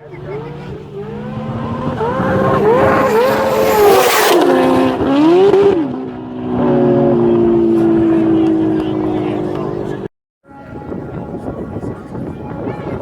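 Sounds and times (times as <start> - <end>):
race car accelerating past: 0.1 - 10.1.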